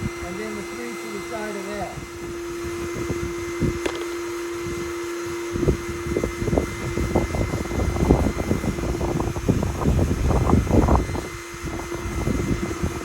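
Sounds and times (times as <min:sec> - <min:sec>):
wind buffeting microphone: 0:00.0 - 0:00.4, 0:01.8 - 0:13.0
microphone handling knocks: 0:03.8 - 0:04.2.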